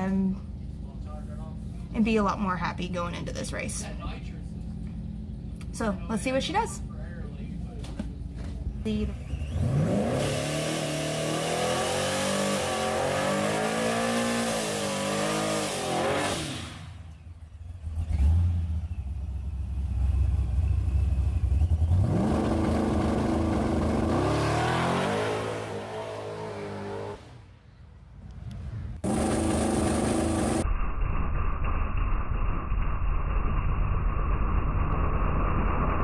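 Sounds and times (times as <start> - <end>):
low heavy rumble: 0.0 - 9.6
drag truck engine revving: 9.1 - 27.6, 28.4 - 30.6.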